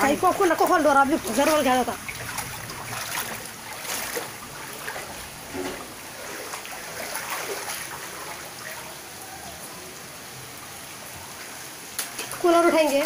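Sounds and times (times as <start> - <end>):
small water splashes: 0.0 - 9.2
water flowing and trickling: 0.0 - 13.0.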